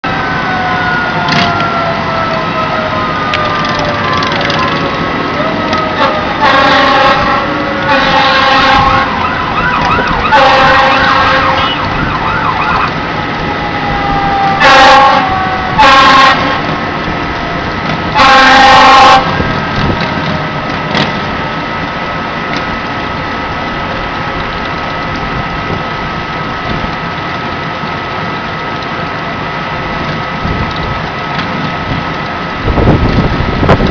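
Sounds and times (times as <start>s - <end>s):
steady high tone: 0.0s - 17.8s
fire engine horn blasts: 0.0s - 21.7s
engine noise: 0.0s - 33.9s
fire engine siren wailing: 0.0s - 33.9s.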